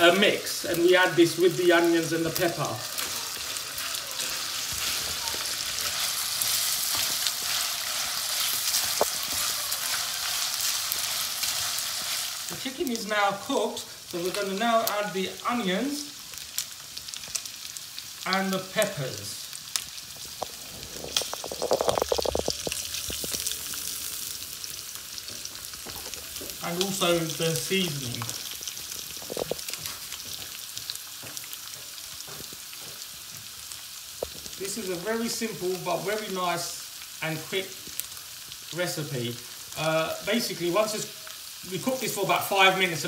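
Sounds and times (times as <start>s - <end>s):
chicken sizzling in a wok: 0.0s - 43.0s
wooden spatula scraping: 2.3s - 13.0s.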